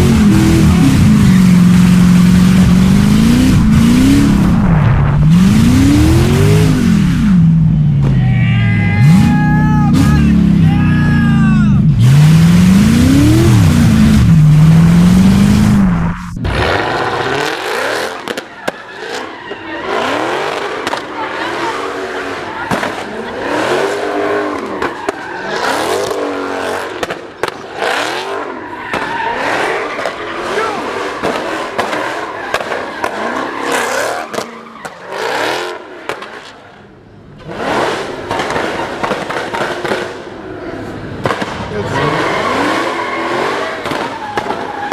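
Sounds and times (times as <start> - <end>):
car engine revving hard: 0.0 - 8.0, 9.0 - 36.4, 37.4 - 44.9
tire noise: 0.0 - 44.9
sharp cracks: 28.9 - 35.1, 38.2 - 40.4, 41.2 - 44.9.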